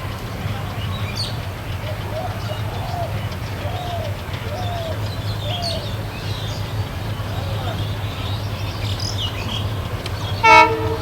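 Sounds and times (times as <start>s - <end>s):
small birds chirping: 0.0s - 11.0s
dove cooing: 0.7s - 11.0s.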